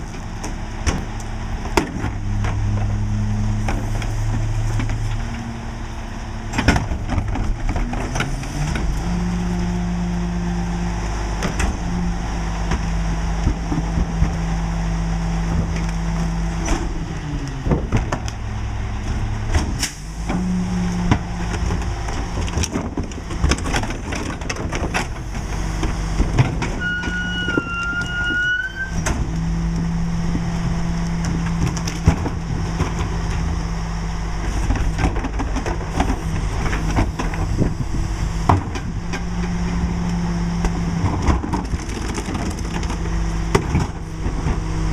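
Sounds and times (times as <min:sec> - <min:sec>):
garbage truck diesel engine: 0:00.0 - 0:44.9
short rising squeal: 0:26.8 - 0:29.0.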